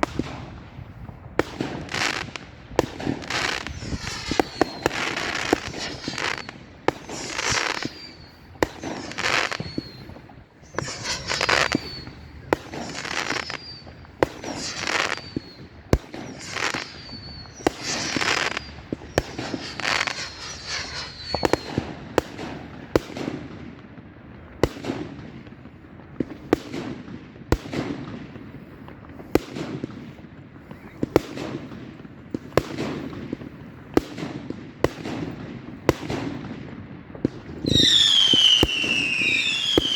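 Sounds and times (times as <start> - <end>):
firework cracks and booms: 0.0 - 39.9
fireworks bangs: 0.0 - 39.9
firework whistles: 1.4 - 22.9, 30.6 - 31.8, 37.5 - 39.9.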